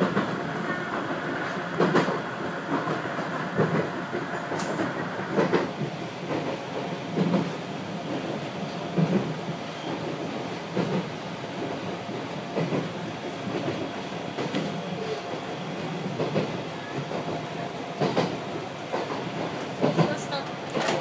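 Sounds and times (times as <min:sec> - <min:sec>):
electric train rumbling: 0:00.0 - 0:21.0
wheels clacking over rail joints: 0:18.0 - 0:21.0.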